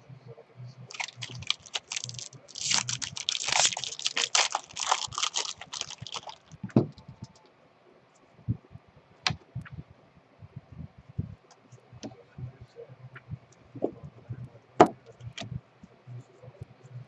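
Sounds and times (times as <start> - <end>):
foil wrapper crinkling and tearing: 0.9 - 6.6.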